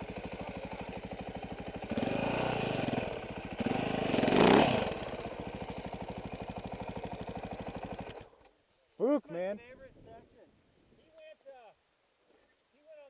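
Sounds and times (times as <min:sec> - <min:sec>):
motorcycle engine idling and revving: 0:00.0 - 0:08.5.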